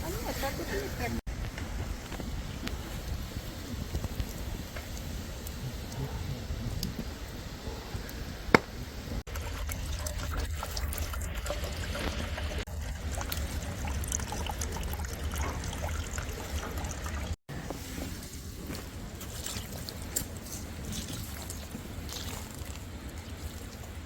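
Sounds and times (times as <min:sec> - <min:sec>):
water trickling and pouring: 0:09.3 - 0:17.4, 0:18.1 - 0:24.0.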